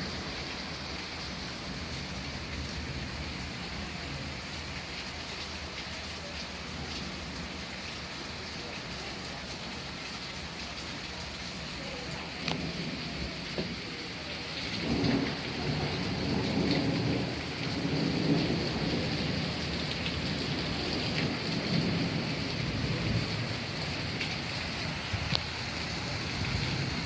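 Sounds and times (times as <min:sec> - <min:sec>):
steady rain: 0:00.0 - 0:27.0
rolling thunder: 0:14.7 - 0:27.0.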